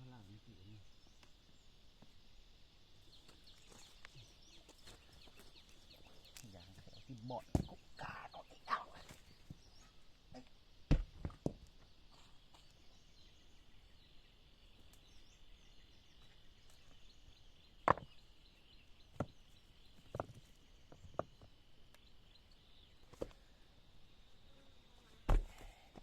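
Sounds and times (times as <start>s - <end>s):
high insect drone: 0.0s - 26.0s
knocks and thuds: 7.4s - 7.8s, 10.9s - 11.6s, 25.3s - 25.6s.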